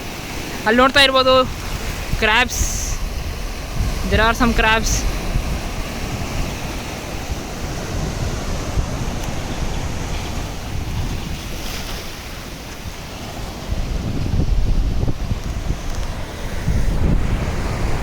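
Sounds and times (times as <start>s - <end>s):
sea waves washing on shore: 0.0s - 18.0s
wind buffeting microphone: 0.0s - 18.0s.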